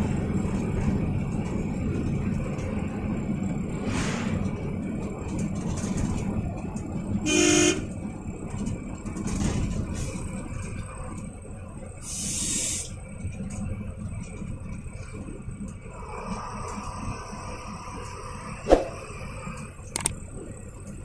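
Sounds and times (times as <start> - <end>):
bus engine and road rumble: 0.0 - 21.0
brief air hiss: 3.9 - 4.4
horn honk: 7.2 - 7.9.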